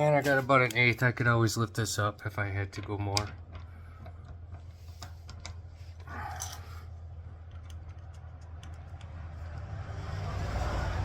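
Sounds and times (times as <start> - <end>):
steady low hum: 0.0 - 11.0
light metallic clicks and taps: 7.4 - 9.6
passing vehicle: 8.3 - 11.0.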